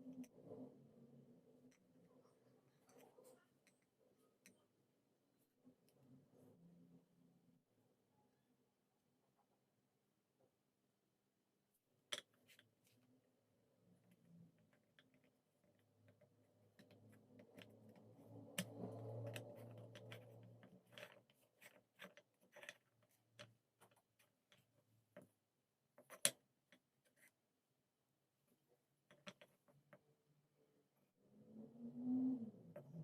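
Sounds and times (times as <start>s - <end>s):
small parts clicking and tapping: 14.1s - 25.4s, 26.0s - 27.2s, 29.0s - 30.1s.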